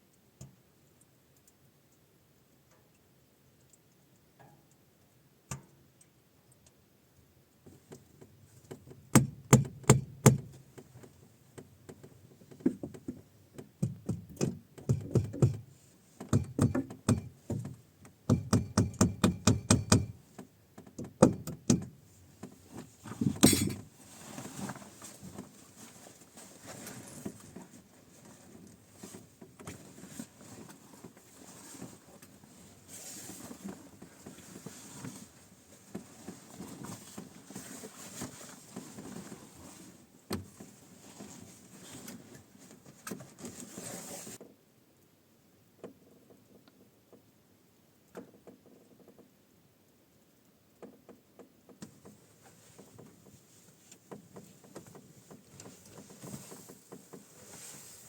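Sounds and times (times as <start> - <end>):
knocks of hard objects handled: 16.2 - 20.2
rustling: 22.1 - 44.4, 51.9 - 58.0.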